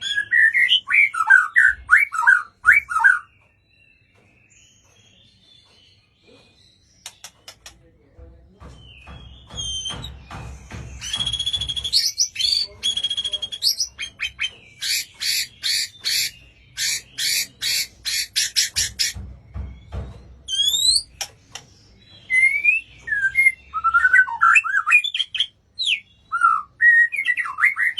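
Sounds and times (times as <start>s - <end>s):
bird singing varied whistles: 11.0s - 18.7s, 20.5s - 21.2s, 22.2s - 27.9s.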